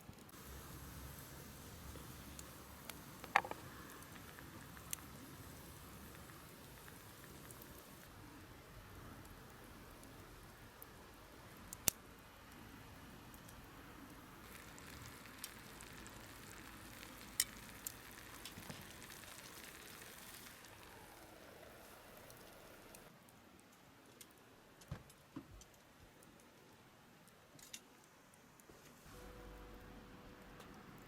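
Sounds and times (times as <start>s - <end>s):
campfire crackles: 0.0s - 31.0s
food sizzling: 0.3s - 8.1s, 14.2s - 23.1s.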